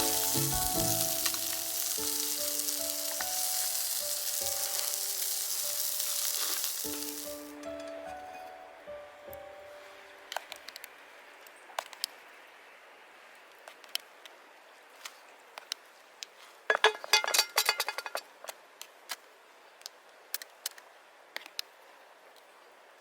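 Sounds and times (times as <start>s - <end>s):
campfire crackling: 0.0s - 8.1s
faint steady hiss: 0.0s - 23.0s.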